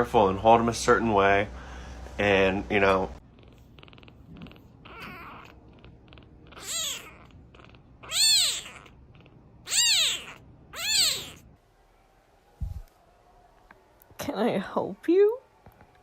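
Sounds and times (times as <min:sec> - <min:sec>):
faint cat purring: 0:03.2 - 0:09.6
cat meowing: 0:03.8 - 0:11.5.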